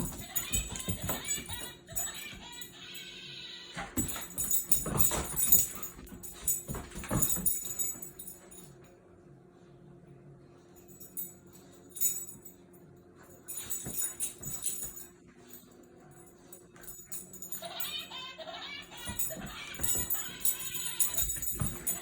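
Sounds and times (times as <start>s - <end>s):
light metallic jingling: 0.0s - 2.7s, 4.0s - 8.7s, 10.8s - 12.6s, 13.3s - 18.1s, 18.8s - 22.0s.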